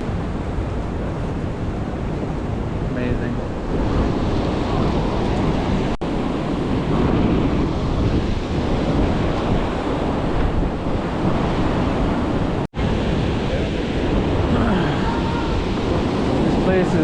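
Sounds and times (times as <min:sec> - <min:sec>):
ocean surf: 0:00.0 - 0:17.0
wind buffeting microphone: 0:00.0 - 0:17.0.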